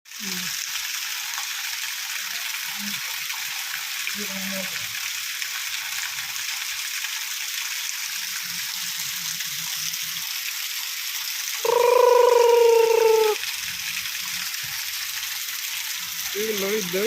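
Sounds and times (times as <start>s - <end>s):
rain falling: 0.1s - 17.0s.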